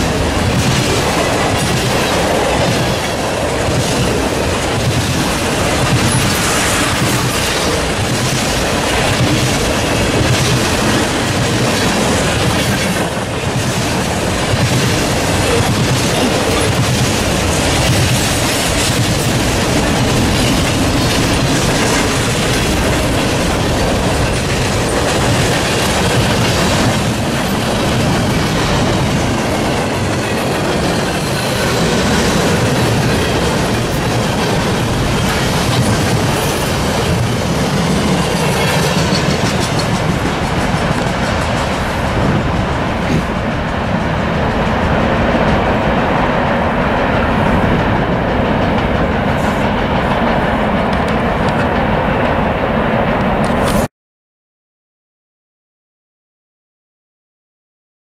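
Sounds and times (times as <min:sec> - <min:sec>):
freight train wheels on rail: 0:00.0 - 0:53.9.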